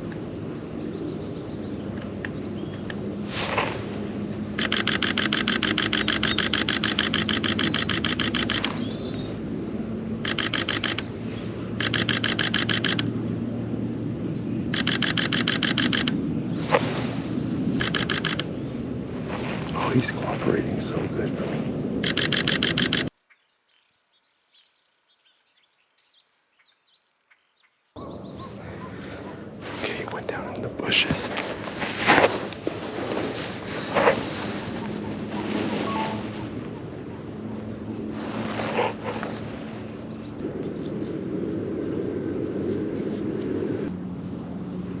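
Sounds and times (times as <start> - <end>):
camera shutter bursts: 4.6 - 8.9, 10.2 - 11.2, 11.8 - 13.1, 14.8 - 16.2, 17.8 - 18.5, 22.0 - 23.2
small birds chirping: 4.6 - 9.3, 10.3 - 12.9, 22.0 - 29.4, 34.7 - 37.3
soft outdoor hiss: 22.1 - 28.0.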